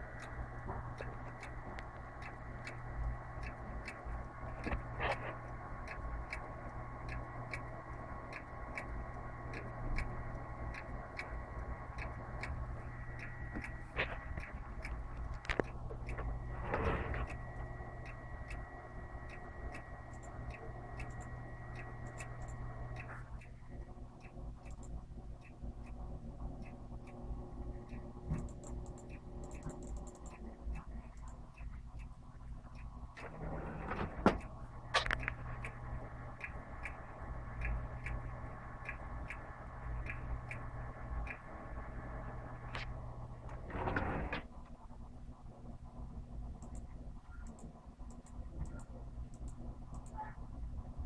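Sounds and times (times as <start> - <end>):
thin high whine: 0.0 - 24.8
computer clicking ticks: 0.0 - 43.6, 46.1 - 51.0
steady computer hum: 0.0 - 51.0.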